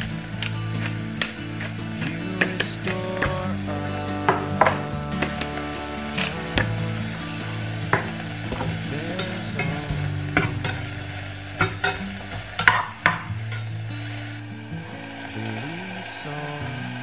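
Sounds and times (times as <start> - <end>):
soft background music: 0.0 - 17.0
utensil clinking against cookware: 7.6 - 13.7.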